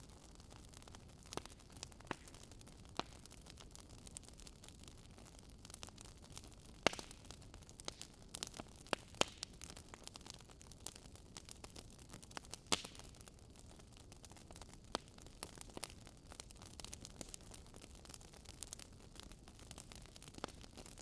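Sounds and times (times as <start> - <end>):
campfire crackling: 0.0 - 21.0
fire pops: 1.3 - 3.4, 6.4 - 10.0, 12.4 - 13.2, 14.6 - 17.6.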